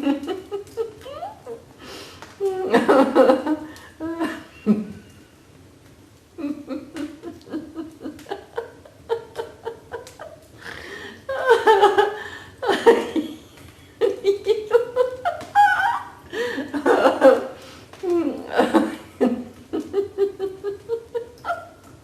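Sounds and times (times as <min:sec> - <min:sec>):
people laughing in bursts: 0:06.4 - 0:17.6.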